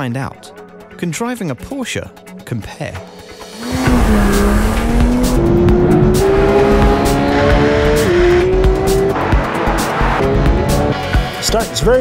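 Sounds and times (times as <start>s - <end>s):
car engine accelerating: 3.4s - 11.4s.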